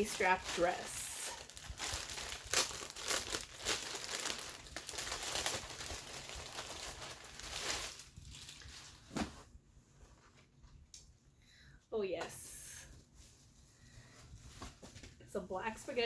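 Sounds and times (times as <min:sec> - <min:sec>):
clothing packaging crinkling: 0:00.0 - 0:09.4.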